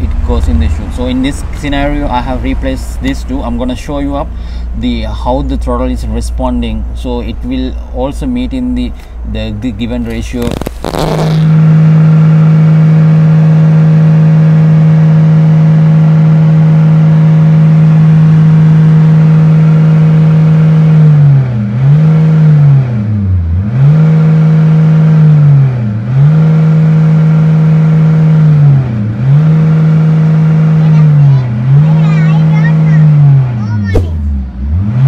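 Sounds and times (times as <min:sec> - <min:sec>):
truck engine revving: 0:10.0 - 0:35.0.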